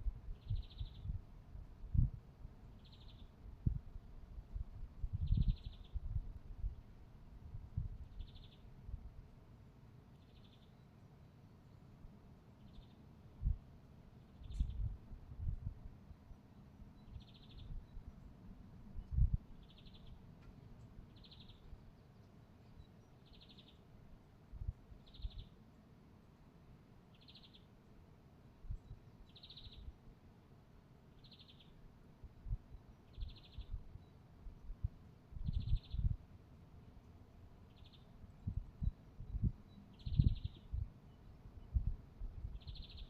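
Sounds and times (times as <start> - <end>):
songbird trilled high call: 42.6 - 43.0.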